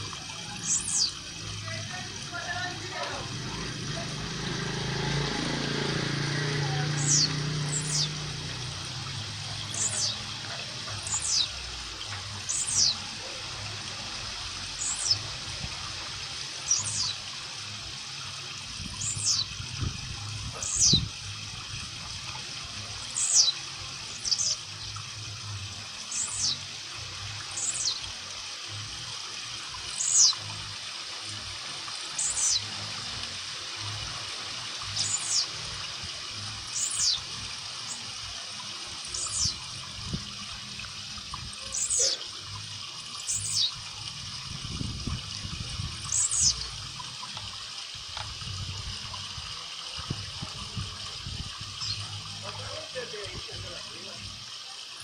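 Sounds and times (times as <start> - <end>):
bird high downward notes: 2.7 - 10.3.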